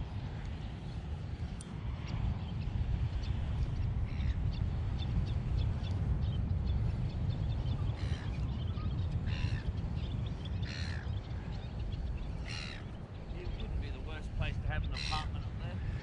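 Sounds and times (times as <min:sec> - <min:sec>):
bird cawing: 0:10.6 - 0:11.1, 0:12.5 - 0:12.9.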